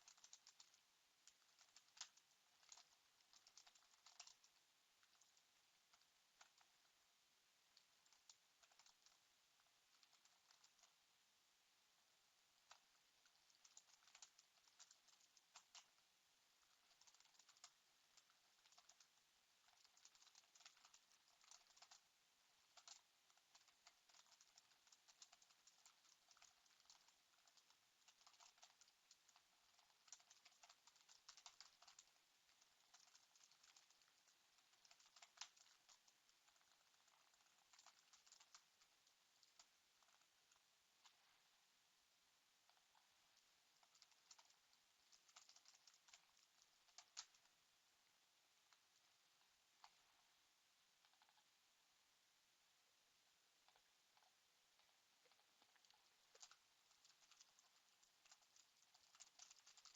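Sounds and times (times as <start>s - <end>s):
typing on computer keyboard: 0.0s - 6.8s, 7.8s - 9.2s, 9.9s - 11.0s, 12.7s - 16.0s, 16.6s - 22.0s, 22.7s - 40.2s, 43.8s - 47.5s, 53.7s - 59.9s.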